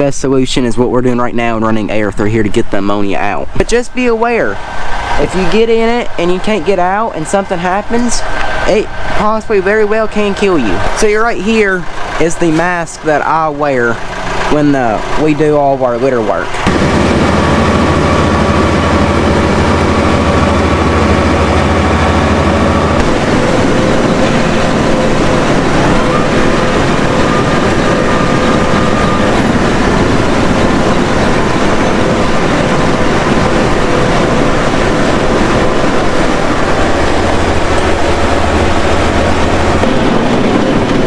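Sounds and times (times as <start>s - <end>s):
tractor engine running: 0.0s - 41.0s.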